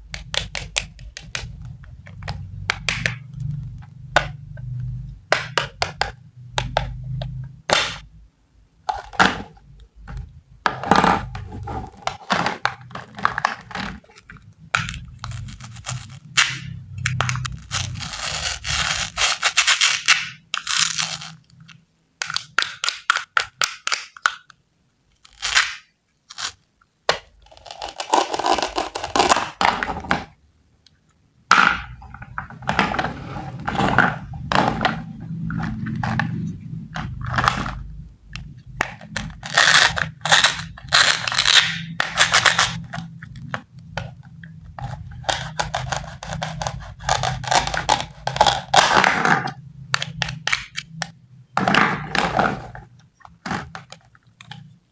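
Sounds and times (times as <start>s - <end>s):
scratchy scraping and rustling: 14.8s - 16.4s, 17.2s - 20.0s.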